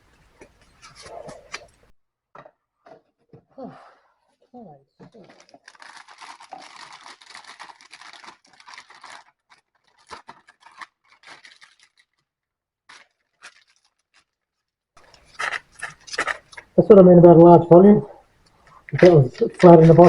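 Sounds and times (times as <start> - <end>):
plastic bag rustling and crinkling: 5.0 - 16.8, 18.6 - 20.0.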